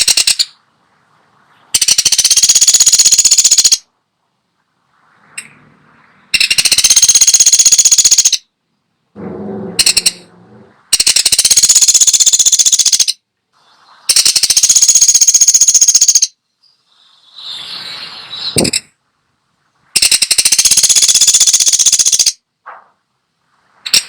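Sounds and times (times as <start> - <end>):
woodpecker rattling calls: 0.0 - 0.6, 1.8 - 3.9, 6.3 - 8.5, 9.8 - 10.2, 10.9 - 13.2, 14.1 - 16.4, 20.0 - 22.4
short soft bird calls: 11.1 - 19.0.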